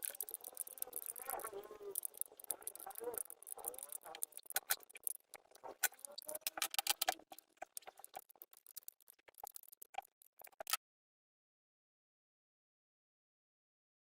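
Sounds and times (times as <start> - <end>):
small parts and tools rattling: 0.0 - 10.8.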